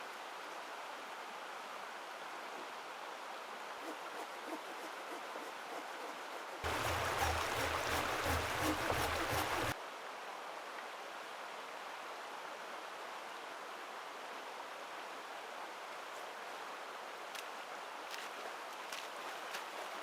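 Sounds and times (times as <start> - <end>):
water hissing: 6.6 - 9.8
low rumble and patter: 6.7 - 9.8.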